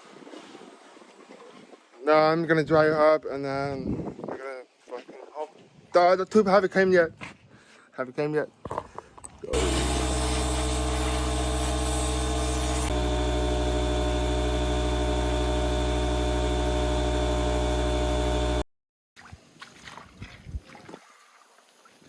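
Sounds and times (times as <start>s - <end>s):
motor humming: 9.6s - 18.6s.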